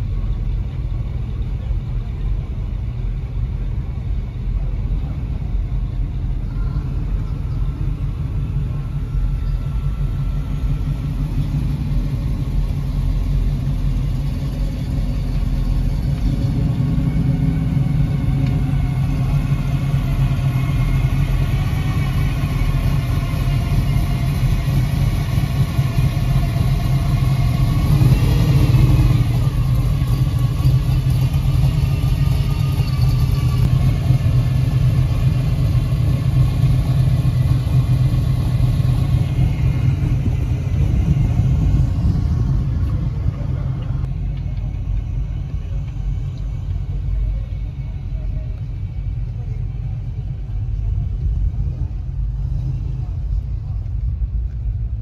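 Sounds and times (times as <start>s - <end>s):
car engines rumbling: 0.0s - 55.0s
car engine revving: 10.3s - 44.1s.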